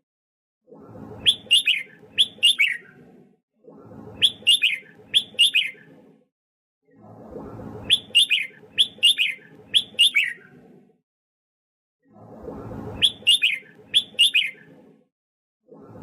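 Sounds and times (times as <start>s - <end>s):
bird singing whistled notes: 1.2s - 2.9s, 4.2s - 5.9s, 7.9s - 10.5s, 13.0s - 14.7s.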